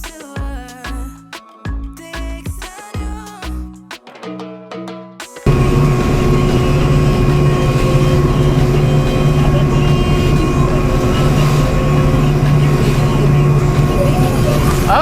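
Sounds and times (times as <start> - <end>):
motorboat engine droning: 5.5 - 15.0.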